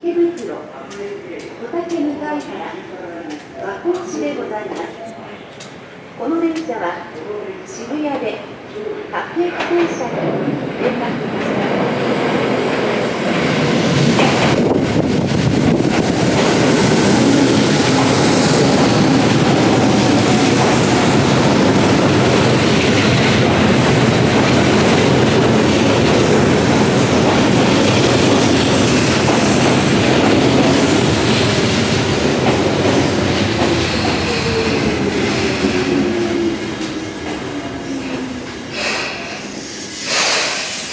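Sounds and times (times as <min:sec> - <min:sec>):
train wheels rumbling and clacking: 0:09.4 - 0:40.9
train brake whine: 0:37.9 - 0:40.9.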